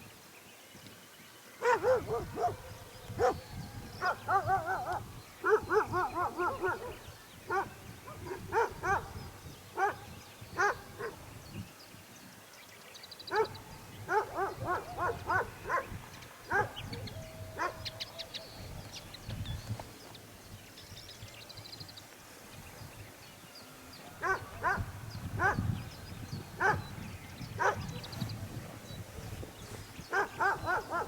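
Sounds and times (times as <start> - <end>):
small birds chirping: 0.0 - 31.0
dog barking: 1.6 - 9.2, 9.8 - 11.2, 13.3 - 18.3, 24.2 - 25.7, 26.6 - 26.9, 27.6 - 28.1, 30.1 - 31.0.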